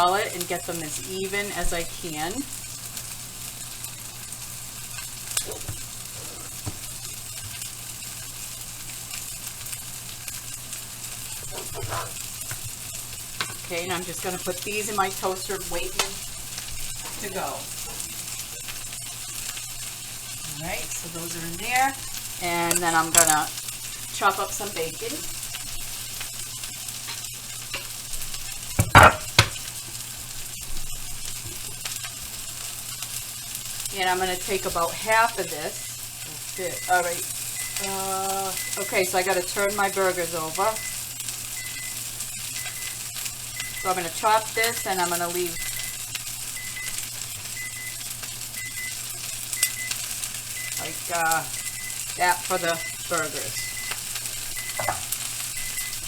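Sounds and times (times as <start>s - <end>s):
burger patties sizzling in pan: 0.0s - 56.0s.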